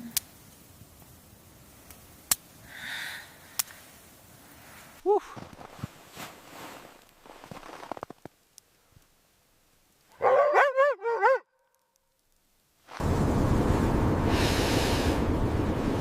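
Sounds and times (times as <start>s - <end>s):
loud rush of wind: 12.9s - 16.0s.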